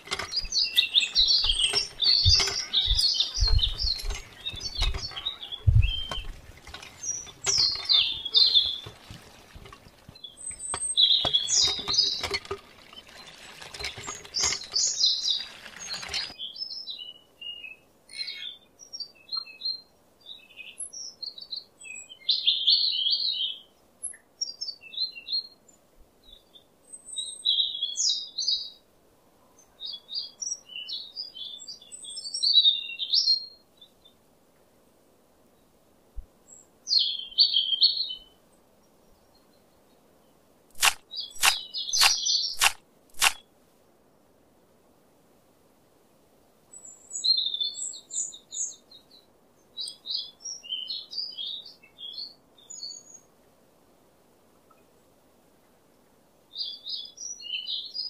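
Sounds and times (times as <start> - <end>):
dense pattering crackling noise: 0.0 - 16.3
small birds chirping: 0.0 - 28.8, 29.5 - 34.2, 36.4 - 43.5, 46.7 - 53.3, 56.5 - 58.0.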